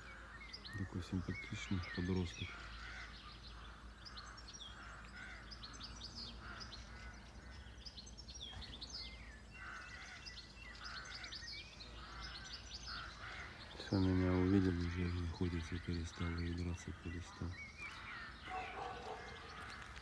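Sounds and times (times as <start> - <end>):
high bird chirps: 0.0 - 20.0
bird warbling phrase: 0.6 - 3.1, 13.3 - 17.8.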